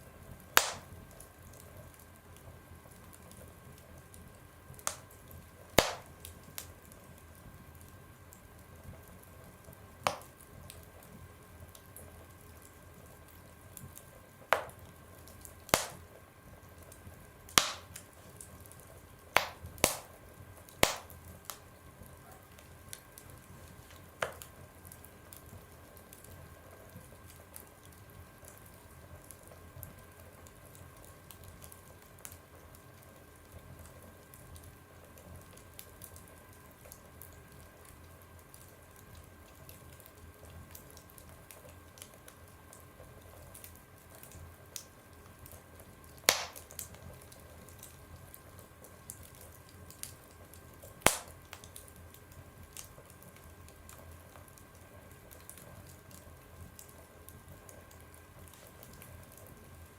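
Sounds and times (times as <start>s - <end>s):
fire crackling: 0.0s - 59.9s
loud sharp pops from fire: 0.5s - 1.3s, 4.8s - 7.0s, 10.0s - 10.9s, 14.5s - 16.2s, 17.5s - 21.7s, 22.3s - 24.6s, 46.2s - 47.1s, 50.8s - 53.0s.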